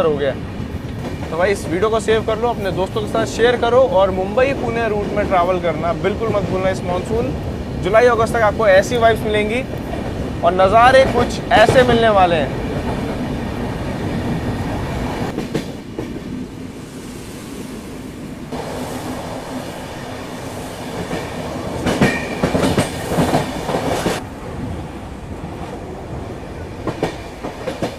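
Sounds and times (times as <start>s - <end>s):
train rumble: 0.0s - 27.9s
wheels clicking over rail joints: 21.0s - 24.2s, 26.8s - 27.9s.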